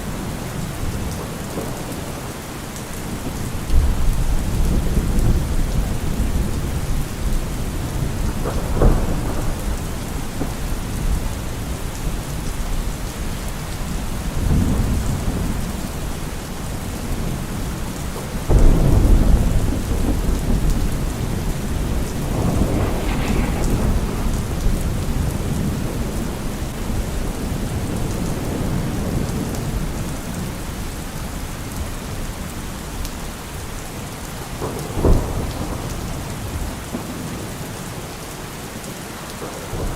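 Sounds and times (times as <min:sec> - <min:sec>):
heavy rain on a car roof: 0:00.0 - 0:39.9
thunder rumbling: 0:03.0 - 0:17.5, 0:18.1 - 0:30.5.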